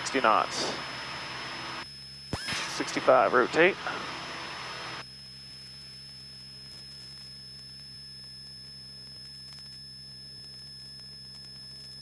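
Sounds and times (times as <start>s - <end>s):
muffled aircraft engine hum: 0.0s - 5.0s
high-pitched electrical whine: 0.0s - 11.1s.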